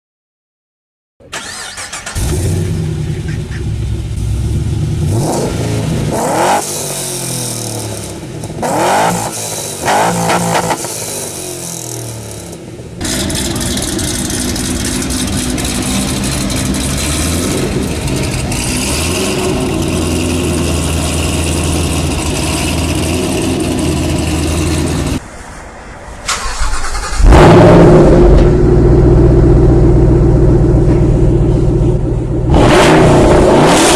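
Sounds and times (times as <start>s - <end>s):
loud car engine: 1.2s - 33.9s
car engines revving: 1.4s - 33.9s
deep engine running steadily: 2.1s - 25.2s, 27.2s - 33.9s.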